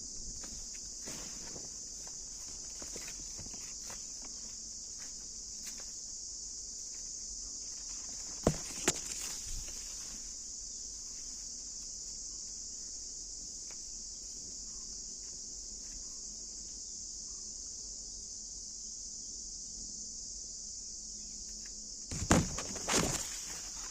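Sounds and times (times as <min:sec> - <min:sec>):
insects droning: 0:00.0 - 0:23.9
sharp knocks: 0:08.4 - 0:09.3, 0:22.1 - 0:23.3.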